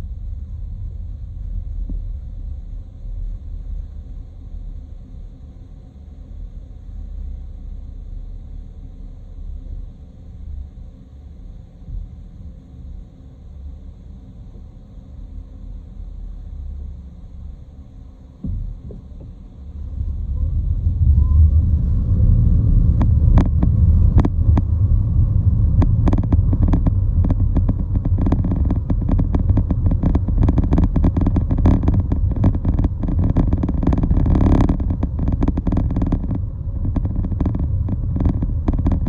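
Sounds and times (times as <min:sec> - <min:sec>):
traffic rumble: 0:18.4 - 0:39.0.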